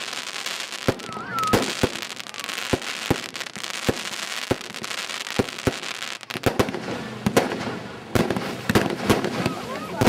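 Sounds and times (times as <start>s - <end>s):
fireworks bangs: 0.0s - 10.0s
fireworks crackle: 0.0s - 10.0s.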